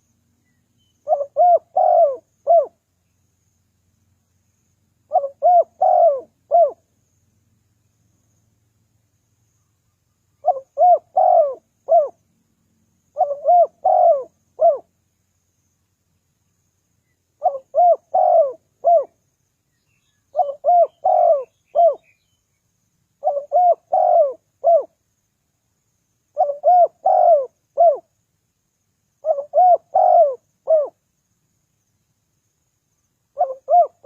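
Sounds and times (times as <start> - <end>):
dove cooing: 1.0 - 2.8, 5.1 - 6.8, 10.4 - 12.2, 13.1 - 14.9, 17.4 - 19.2, 20.3 - 22.1, 23.2 - 25.0, 26.3 - 28.1, 29.2 - 31.0, 33.4 - 34.0.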